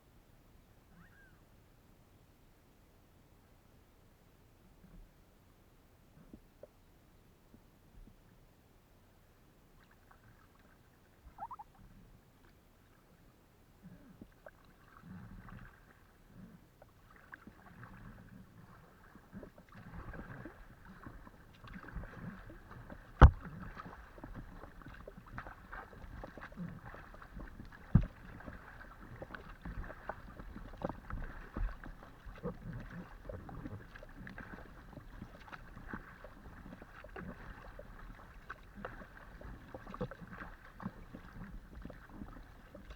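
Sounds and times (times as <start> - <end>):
paddle splashing and dripping: 16.8 - 42.9
paddle knocking on kayak: 20.0 - 42.9.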